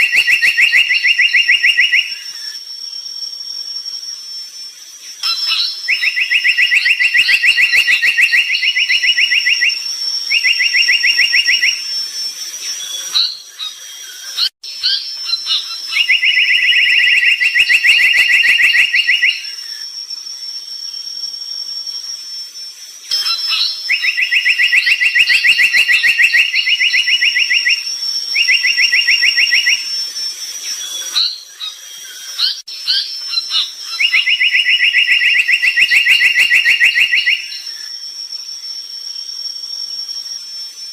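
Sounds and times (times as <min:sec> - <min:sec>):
songbird trilling: 0:00.0 - 0:02.6, 0:05.2 - 0:19.8, 0:23.1 - 0:37.9
higher chirps: 0:00.0 - 0:40.8
thin high tone: 0:21.2 - 0:25.8.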